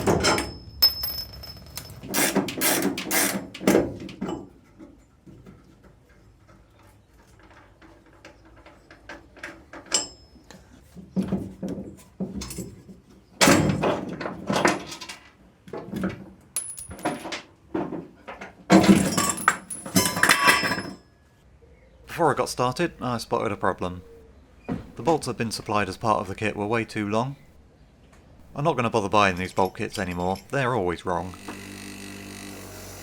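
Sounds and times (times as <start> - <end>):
metal tools clinking and clattering: 0.0 - 3.3, 8.3 - 10.6, 16.6 - 17.5, 18.7 - 21.0, 29.2 - 30.7.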